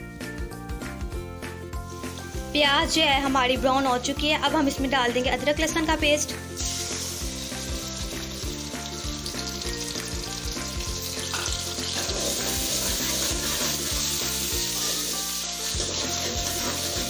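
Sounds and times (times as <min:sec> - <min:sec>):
paste sizzling in hot oil: 0:01.9 - 0:03.4, 0:06.2 - 0:17.0.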